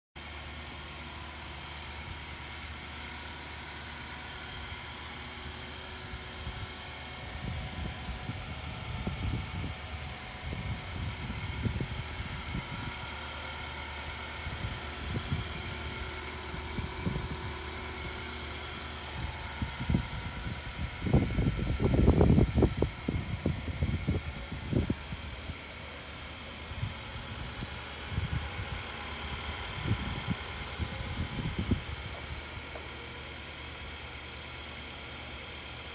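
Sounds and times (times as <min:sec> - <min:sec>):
car engine idling: 0:00.2 - 0:35.9
wind buffeting microphone: 0:06.0 - 0:13.1, 0:14.3 - 0:25.7, 0:26.6 - 0:32.8.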